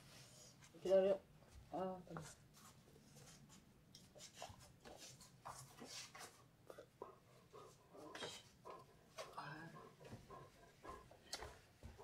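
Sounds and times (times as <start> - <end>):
faint soft rustles and taps: 0.6 - 6.5, 11.1 - 12.0.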